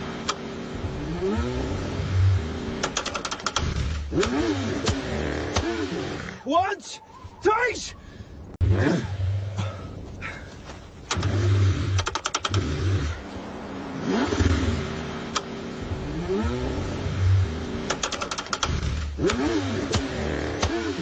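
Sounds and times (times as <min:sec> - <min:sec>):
car engine cranking: 0:00.0 - 0:06.4, 0:11.0 - 0:21.0
rapid clicking: 0:02.8 - 0:05.7, 0:11.1 - 0:12.7, 0:17.9 - 0:20.8.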